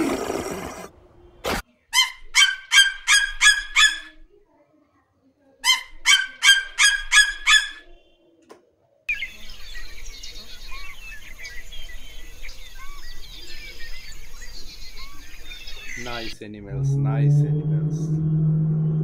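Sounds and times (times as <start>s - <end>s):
bird harsh repeated call: 1.4s - 4.2s, 5.6s - 8.3s
small birds chirping and twittering: 9.1s - 16.6s.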